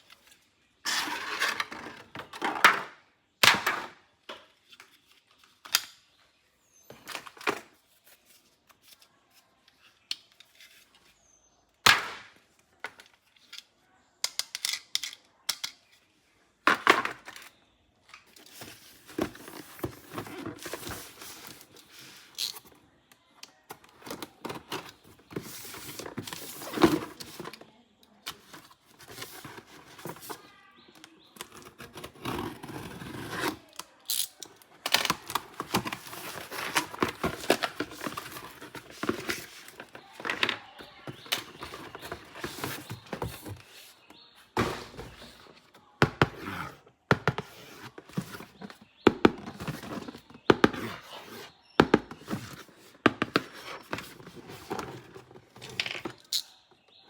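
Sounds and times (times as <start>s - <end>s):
plastic toy parts clicking: 13.4s - 15.8s, 34.0s - 35.3s
packaging crinkling and rustling: 34.4s - 44.0s.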